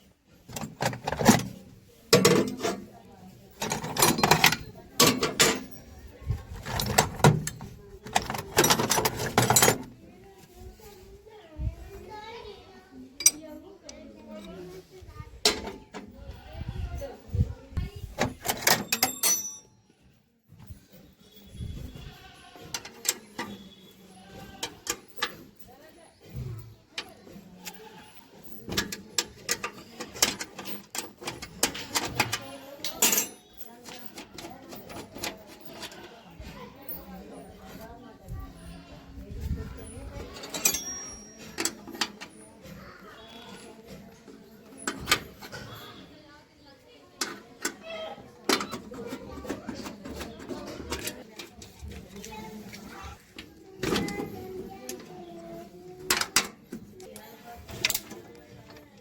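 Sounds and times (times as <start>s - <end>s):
metal tools clinking and rattling: 0.4s - 10.0s, 13.2s - 14.8s, 17.0s - 38.8s, 39.4s - 46.0s, 47.2s - 58.9s
hand tools clicking on metal: 3.6s - 5.9s, 13.2s - 14.5s, 27.0s - 36.1s, 40.4s - 42.5s.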